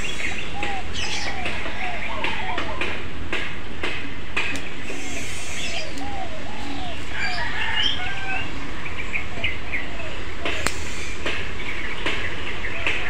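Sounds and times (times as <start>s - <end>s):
dove cooing: 0.0s - 3.0s, 4.8s - 11.2s
small birds chirping: 0.0s - 3.0s, 4.5s - 13.0s.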